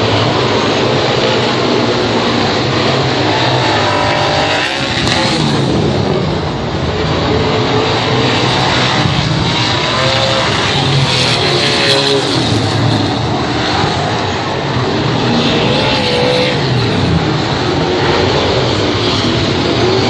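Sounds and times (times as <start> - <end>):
race car engines at high revs: 0.0 - 20.0.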